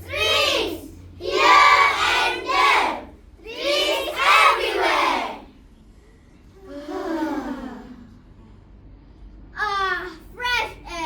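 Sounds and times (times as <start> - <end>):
children reciting in unison: 0.0 - 5.5.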